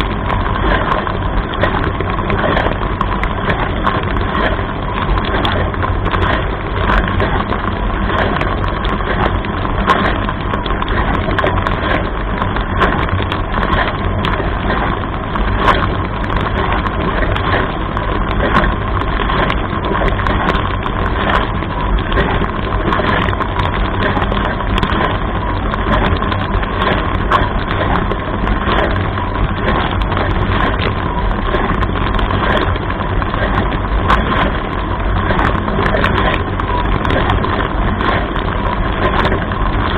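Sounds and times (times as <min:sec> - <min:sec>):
low pump hum: 0:00.0 - 0:39.9.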